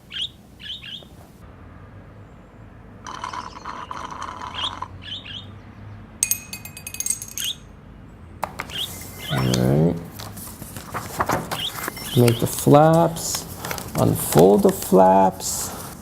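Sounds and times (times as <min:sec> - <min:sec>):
budgie chirping: 0:00.0 - 0:01.1, 0:03.2 - 0:05.6, 0:08.6 - 0:10.0, 0:11.5 - 0:12.6
clinking: 0:03.1 - 0:04.9, 0:06.2 - 0:07.7
rustling: 0:08.4 - 0:16.0.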